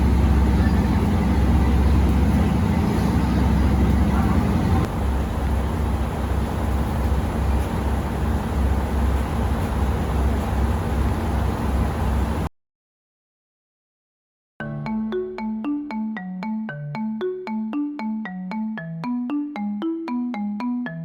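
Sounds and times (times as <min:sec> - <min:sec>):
train rumbling inside carriage: 0:00.0 - 0:12.5.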